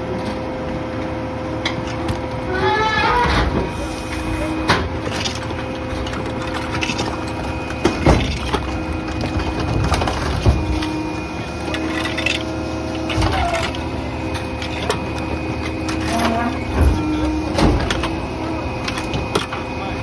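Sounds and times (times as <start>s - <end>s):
truck engine and hydraulics hum: 0.0s - 20.0s
wood cracking and splintering: 4.8s - 19.6s.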